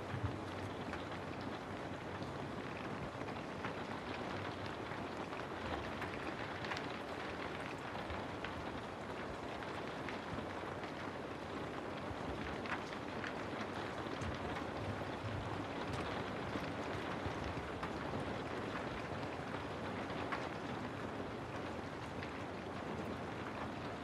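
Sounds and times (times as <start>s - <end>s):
steady rain hiss: 0.0s - 24.0s
raindrop ticks: 0.1s - 20.8s, 21.6s - 24.0s.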